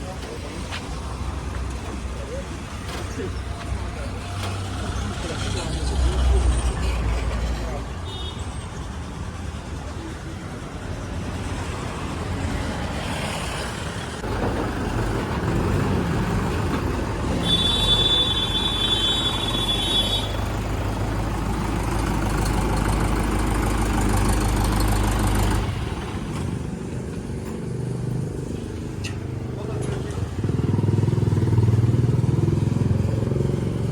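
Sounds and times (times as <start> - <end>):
heavy vehicle engine running: 0.0 - 33.9.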